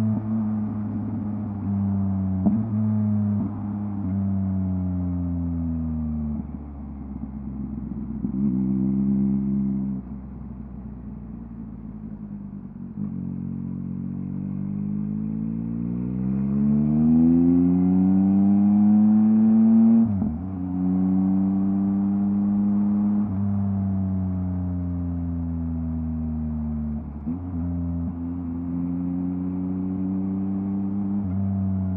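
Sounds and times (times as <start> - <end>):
motorcycle engine revving: 13.0 - 23.6.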